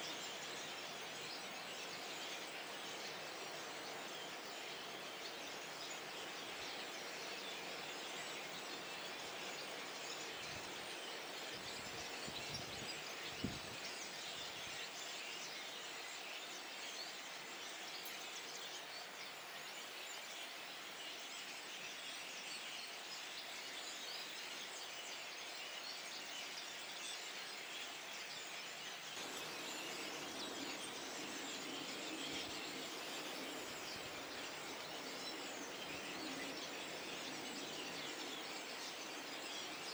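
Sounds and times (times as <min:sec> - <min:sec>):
flock of starlings chattering: 0:29.2 - 0:39.9.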